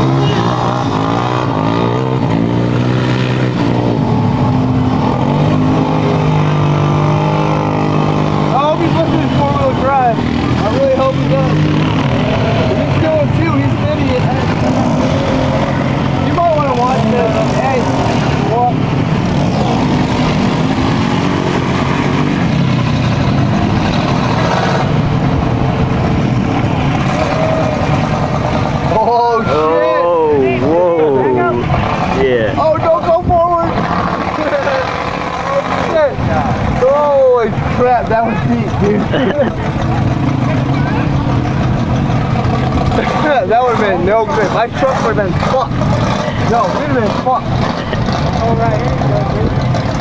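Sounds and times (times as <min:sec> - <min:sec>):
continuous rushing noise: 0:00.0 - 0:50.0
truck engine revving: 0:00.0 - 0:50.0.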